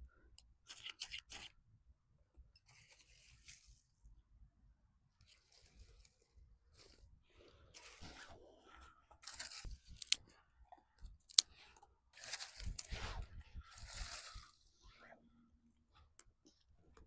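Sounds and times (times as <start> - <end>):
crunching and rustling of dry debris: 5.2 - 10.4, 11.0 - 14.8.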